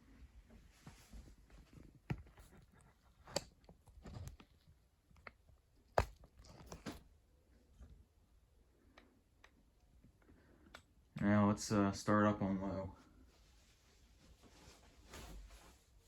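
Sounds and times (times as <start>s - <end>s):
rustling: 13.1s - 16.0s.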